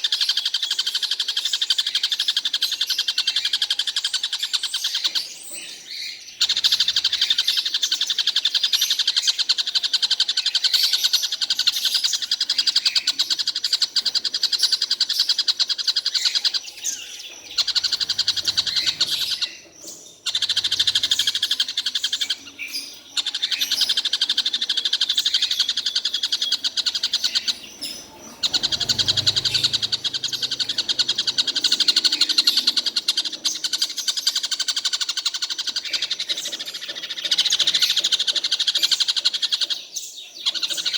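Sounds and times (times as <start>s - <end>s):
kingfisher rattling trills: 9.4s - 39.7s.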